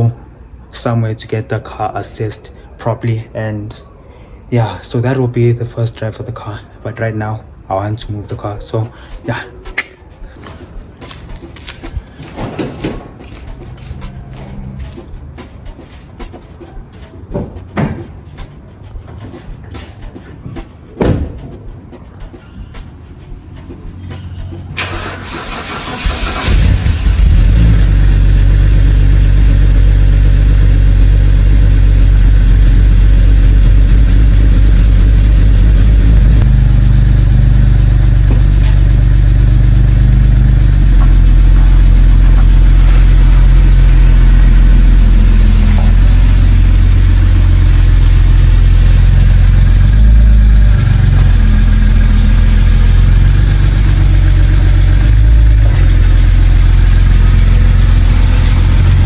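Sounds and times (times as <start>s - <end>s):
car engine running: 24.4s - 59.0s.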